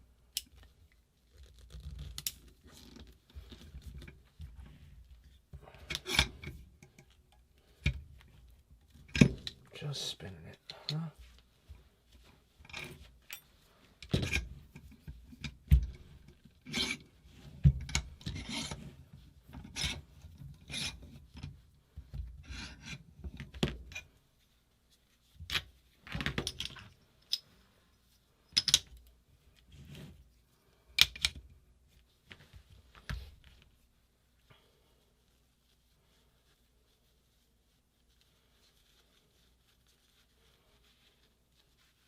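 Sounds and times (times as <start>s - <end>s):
scraping and rubbing on metal: 11.1s - 21.8s, 22.4s - 26.1s.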